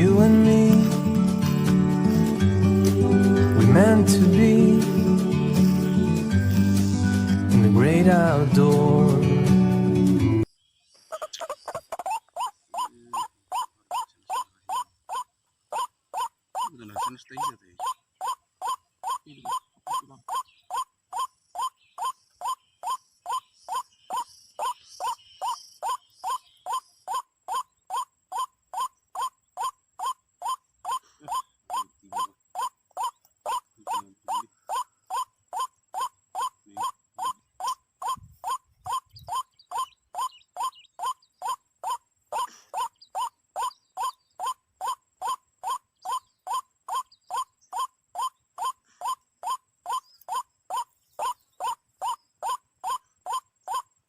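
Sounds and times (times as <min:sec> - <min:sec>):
waterhen calling: 0:11.1 - 0:53.8.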